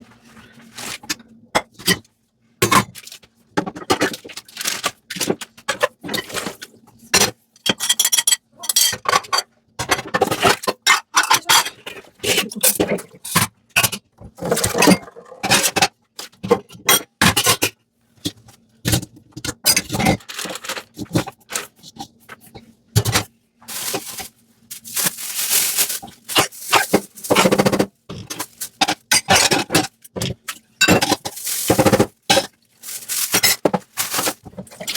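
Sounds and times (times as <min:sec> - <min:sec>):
sponge scrubbing dishes: 0:23.6 - 0:29.9, 0:30.8 - 0:34.9.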